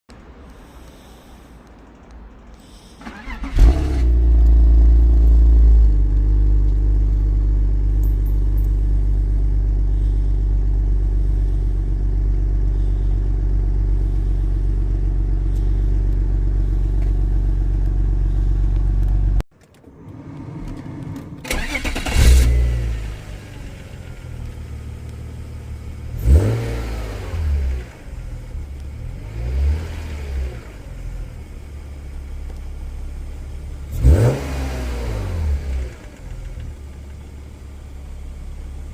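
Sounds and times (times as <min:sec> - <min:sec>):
car engine starting and idling: 0:02.6 - 0:38.9
car engine revving in blips: 0:20.0 - 0:31.4, 0:33.7 - 0:37.3.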